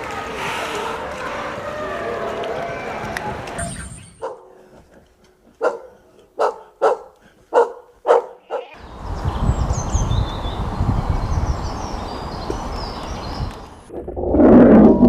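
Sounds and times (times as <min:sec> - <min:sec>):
outdoor noise: 0:00.0 - 0:15.0
birds chirping: 0:03.6 - 0:13.9
dog barking: 0:04.2 - 0:04.7, 0:05.6 - 0:08.8.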